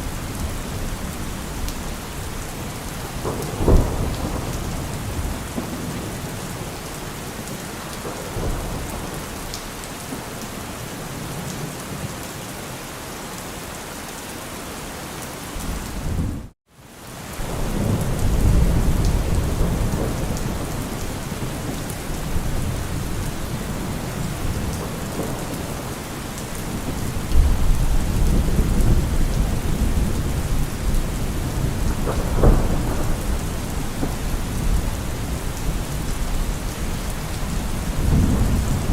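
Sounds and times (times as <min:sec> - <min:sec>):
thunder rumbling: 0:00.0 - 0:09.9, 0:17.4 - 0:38.9
heavy rain drumming on car roof: 0:00.4 - 0:10.5, 0:17.4 - 0:38.9.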